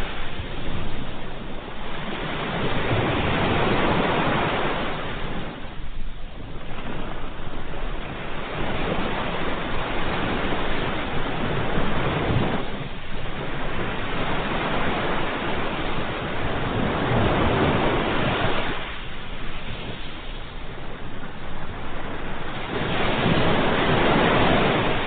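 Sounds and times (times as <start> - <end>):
ocean waves washing in: 0.0 - 25.0.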